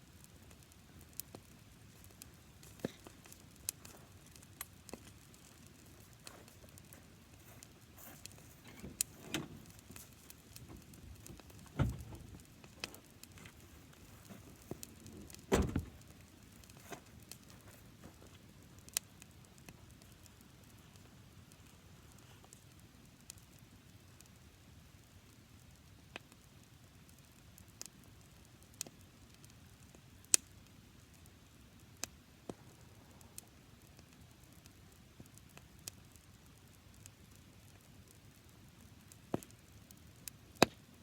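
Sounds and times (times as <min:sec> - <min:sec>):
dry grass fire crackling: 0:00.0 - 0:41.0
dull thuds: 0:10.6 - 0:12.5, 0:14.2 - 0:16.0.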